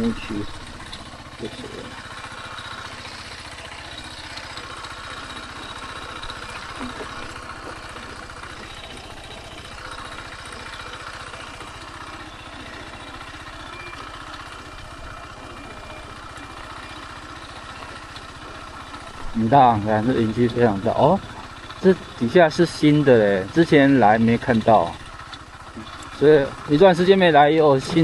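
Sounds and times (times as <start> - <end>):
scooter engine running at low speed: 0.0 - 28.0.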